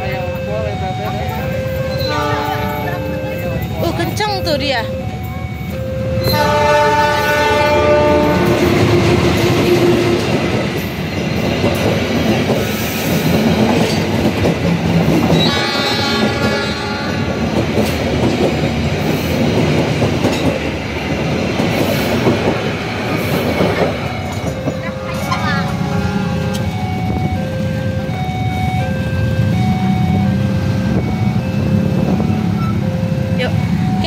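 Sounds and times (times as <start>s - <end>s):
train wheels rumbling on rails: 0.0s - 34.0s
train horn: 1.9s - 3.4s, 6.2s - 10.2s, 15.3s - 17.4s, 25.0s - 26.7s.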